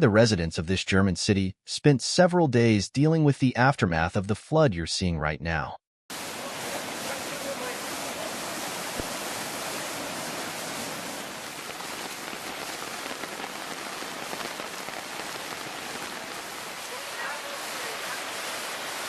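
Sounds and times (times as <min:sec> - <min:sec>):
water rushing: 0:06.1 - 0:19.0.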